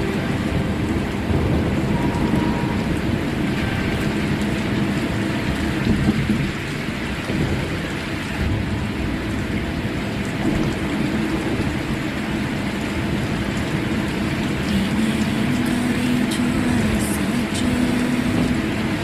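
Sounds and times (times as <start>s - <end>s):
low rumble: 0.0s - 14.6s
rain on a car: 0.0s - 19.0s.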